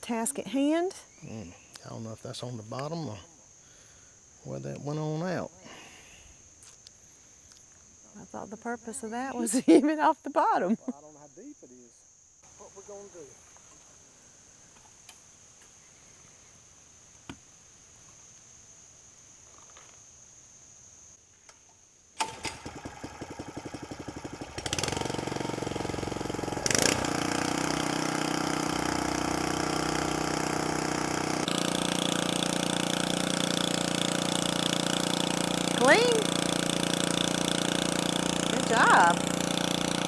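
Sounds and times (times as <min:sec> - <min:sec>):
small gasoline engine running: 0:22.2 - 0:40.0.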